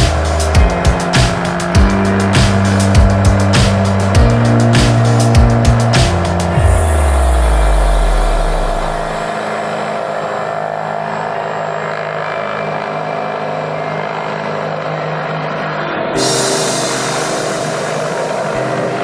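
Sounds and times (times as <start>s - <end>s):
deep low tone: 0.0s - 9.4s
helicopter engine and rotor drone: 0.0s - 19.0s.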